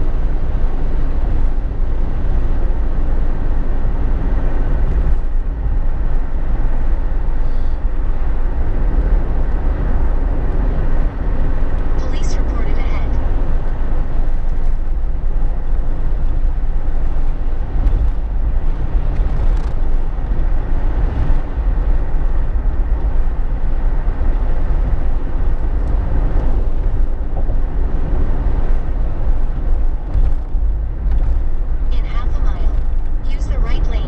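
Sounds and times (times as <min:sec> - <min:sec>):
road and engine rumble in car: 0:00.0 - 0:34.0.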